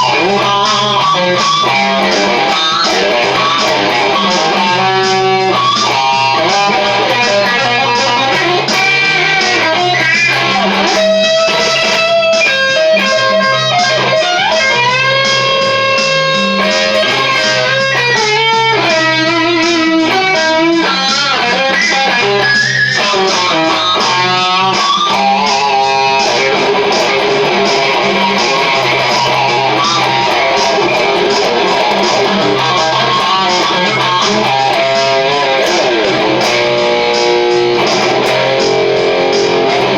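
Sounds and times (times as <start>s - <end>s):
drum beat: 0.0s - 39.9s
electric guitar lead: 0.0s - 39.9s
bass line: 22.5s - 39.9s.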